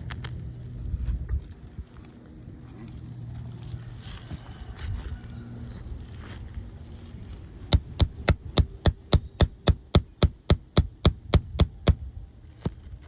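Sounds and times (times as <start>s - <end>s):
hammer tapping on shingle: 7.7s - 12.0s.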